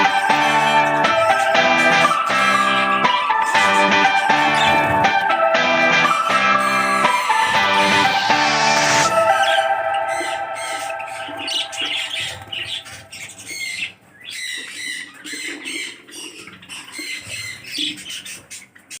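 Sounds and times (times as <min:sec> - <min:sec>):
background music: 0:00.0 - 0:13.5
cage birds chirping and squawking: 0:00.0 - 0:19.0.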